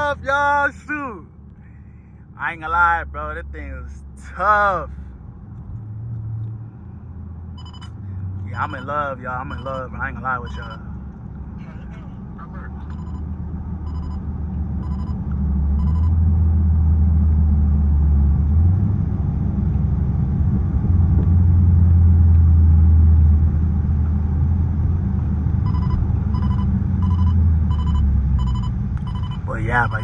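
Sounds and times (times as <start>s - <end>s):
repeating electronic chime: 15.8s - 16.1s, 25.7s - 30.0s.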